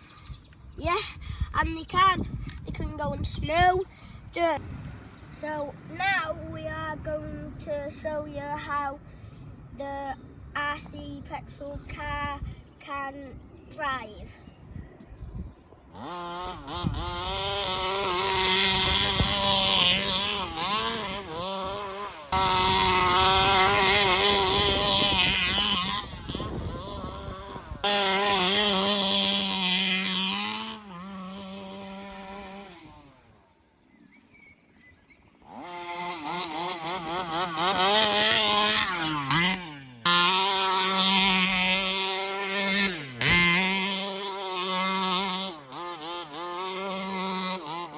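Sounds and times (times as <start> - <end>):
rc buggy engine revving: 15.8 - 33.8, 35.3 - 47.9.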